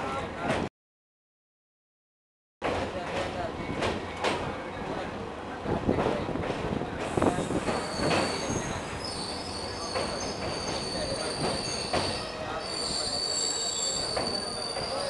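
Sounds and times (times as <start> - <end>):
train running on rails: 2.6 - 15.0
steel wheels squealing: 7.4 - 15.0.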